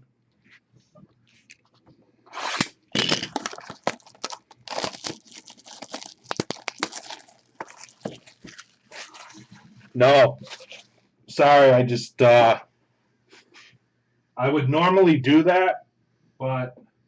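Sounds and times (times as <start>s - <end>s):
plastic wrap and cardboard crinkling: 2.4s - 10.9s.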